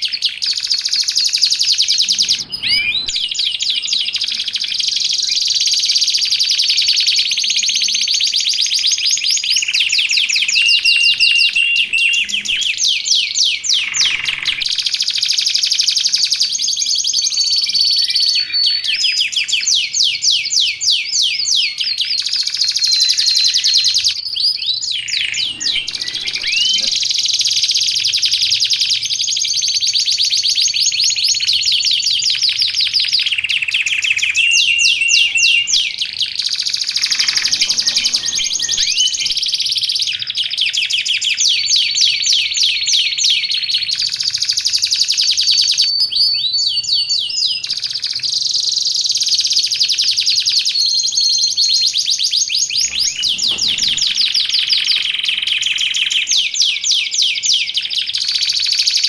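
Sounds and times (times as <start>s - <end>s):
canary singing: 0.1s - 16.4s, 21.4s - 28.4s, 32.8s - 48.3s, 50.7s - 59.0s.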